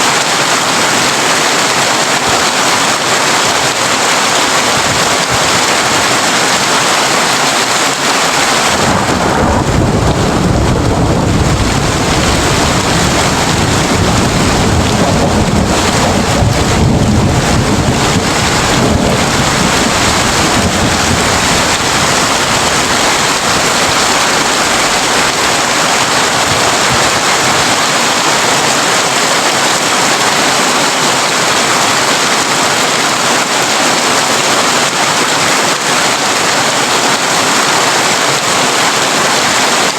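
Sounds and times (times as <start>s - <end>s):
rain on a tin roof: 0.0s - 39.9s
deep thunder rumble: 8.6s - 27.7s.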